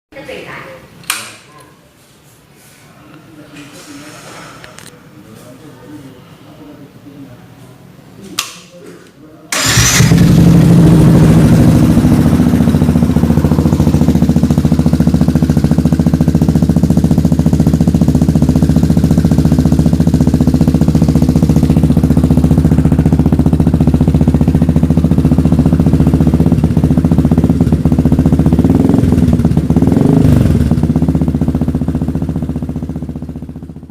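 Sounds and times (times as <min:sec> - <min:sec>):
motorcycle idling: 0:09.5 - 0:33.9.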